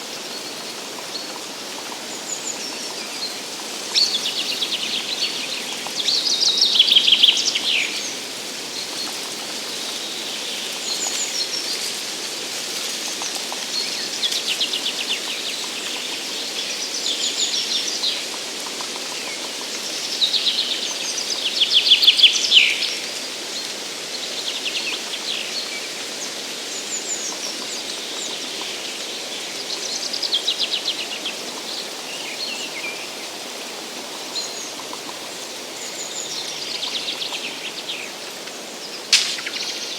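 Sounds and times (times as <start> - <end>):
background hiss: 0.0 - 39.9
songbirds trilling: 26.8 - 39.9.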